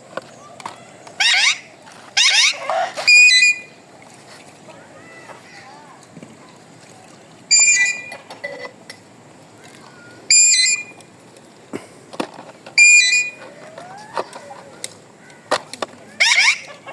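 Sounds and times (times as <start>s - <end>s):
parrot shrill calls: 1.2s - 3.7s, 7.5s - 8.1s, 10.3s - 10.9s, 16.2s - 16.8s
faint sliding sounds: 4.0s - 7.2s.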